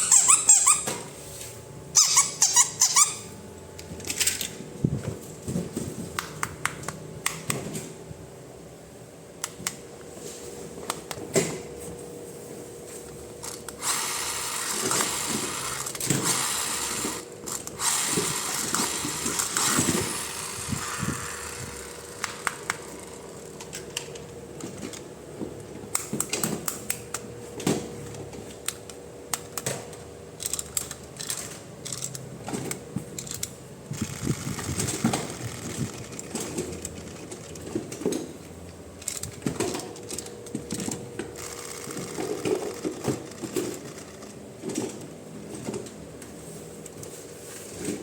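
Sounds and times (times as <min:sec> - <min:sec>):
plastic toy parts clicking: 0:30.4 - 0:37.7.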